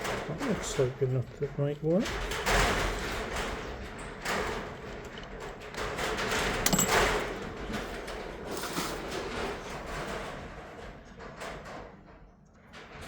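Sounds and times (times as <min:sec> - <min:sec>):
clicks and knocks: 0:04.6 - 0:08.0
hands rummaging through parts: 0:06.3 - 0:10.0.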